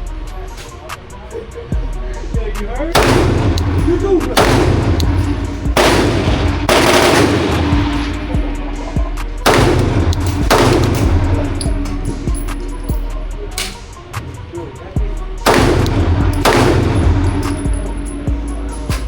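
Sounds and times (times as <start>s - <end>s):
background music: 0.0s - 19.0s
pistol shots: 3.0s - 8.4s, 9.4s - 14.0s, 15.4s - 18.2s.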